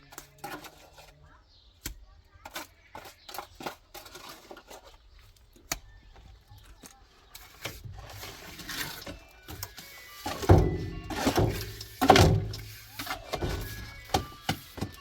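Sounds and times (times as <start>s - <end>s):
scraping: 6.8s - 15.0s.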